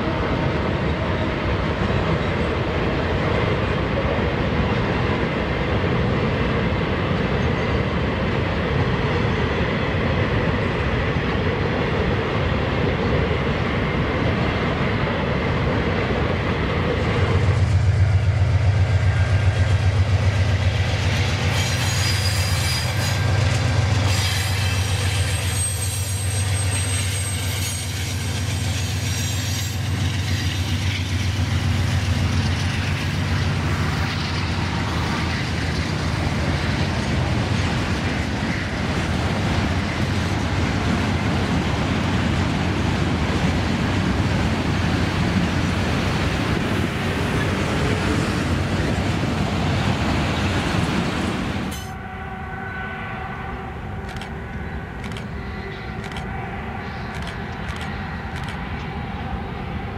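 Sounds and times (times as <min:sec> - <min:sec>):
freight train rolling: 0:00.0 - 0:59.9
wheel squeal: 0:21.4 - 0:23.4, 0:24.0 - 0:31.2.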